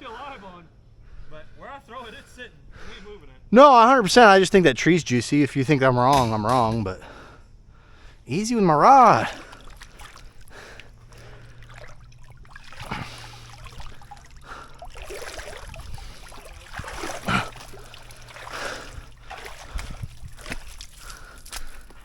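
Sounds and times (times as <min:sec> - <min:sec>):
water lapping against boat: 0:07.9 - 0:22.0.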